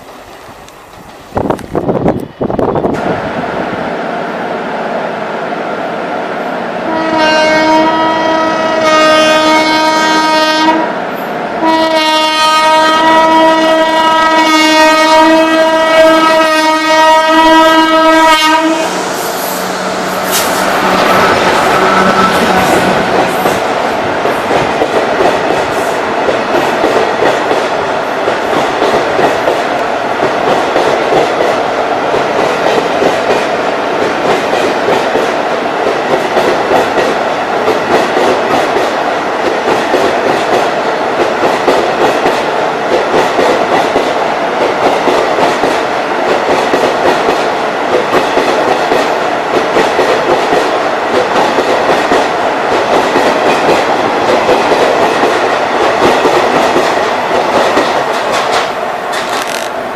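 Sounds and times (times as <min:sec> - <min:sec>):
train wheels clattering over rail joints: 0:36.0 - 0:59.8.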